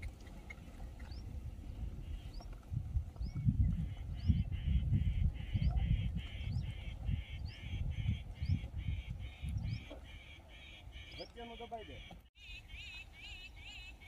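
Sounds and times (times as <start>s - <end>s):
bird calling harsh notes: 4.2s - 14.0s.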